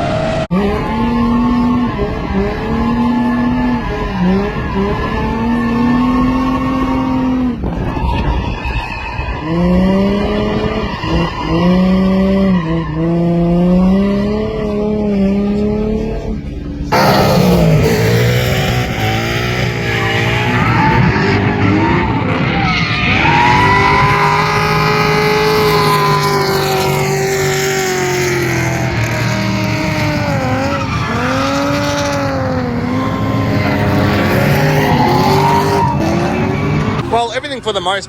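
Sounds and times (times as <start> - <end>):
car engine revving: 0.0 - 38.0
tyres squealing: 16.9 - 38.0.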